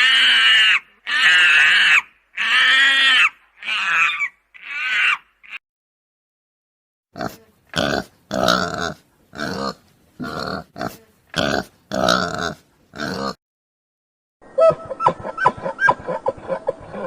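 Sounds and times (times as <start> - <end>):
animal grunting: 7.2 - 13.4.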